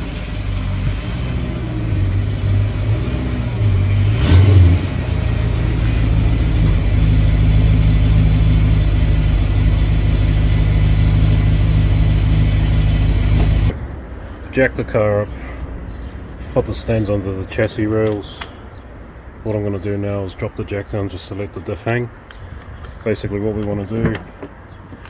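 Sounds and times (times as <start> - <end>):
car engine running: 0.0 - 13.8.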